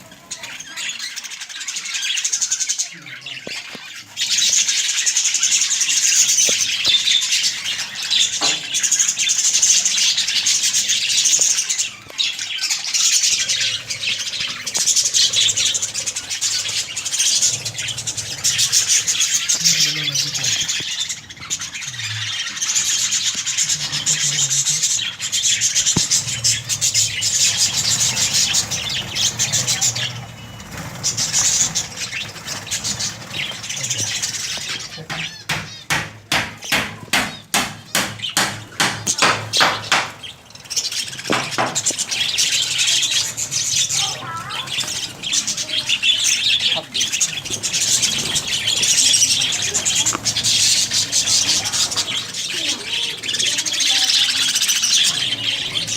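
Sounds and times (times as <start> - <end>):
budgerigars chattering: 0.0 - 55.9.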